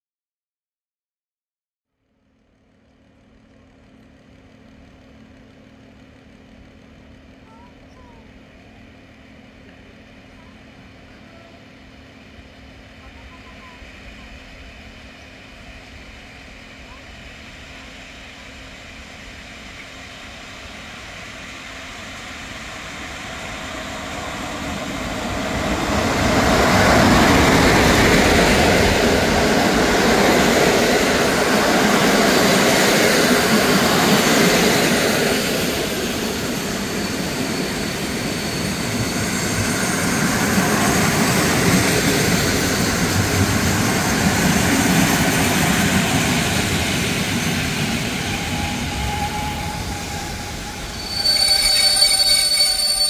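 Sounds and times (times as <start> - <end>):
passenger train passing: 4.5 - 53.0
wheels on rails: 19.3 - 53.0.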